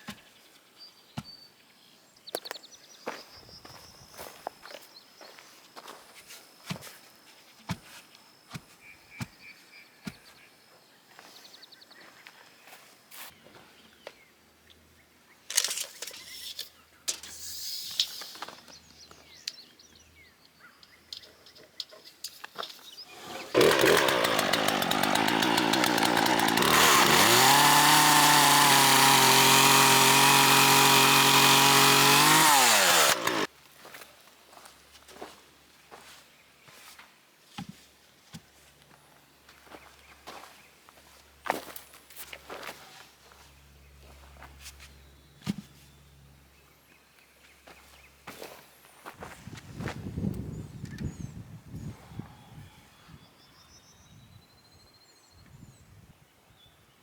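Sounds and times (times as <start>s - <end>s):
chainsaw cutting wood: 23.1s - 33.5s.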